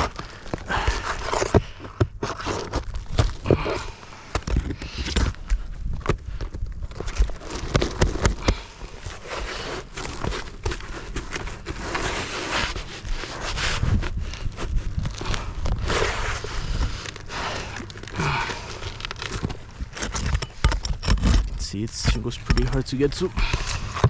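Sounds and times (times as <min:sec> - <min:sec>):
shingles scraping and crackling: 0:00.0 - 0:24.0
scuffs of movement on roof: 0:06.0 - 0:20.6.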